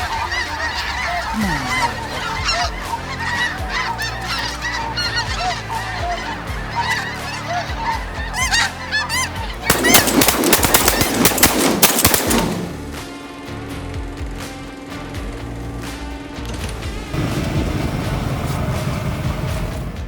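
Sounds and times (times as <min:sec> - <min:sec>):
snow geese honking: 0:00.0 - 0:13.0
shotgun volley: 0:09.6 - 0:13.1.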